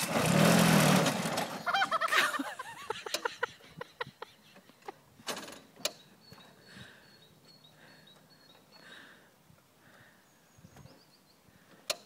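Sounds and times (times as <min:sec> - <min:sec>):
tractor mechanism clicking and knocking: 0:04.6 - 0:06.5, 0:11.7 - 0:12.0.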